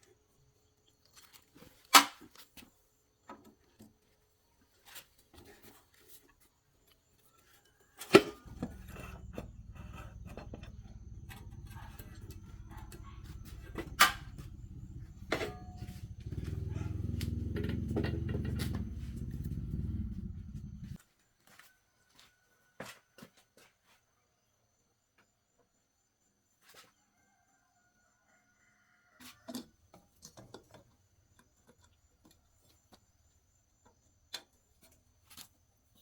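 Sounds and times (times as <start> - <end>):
low mechanical drone: 8.5 - 21.0.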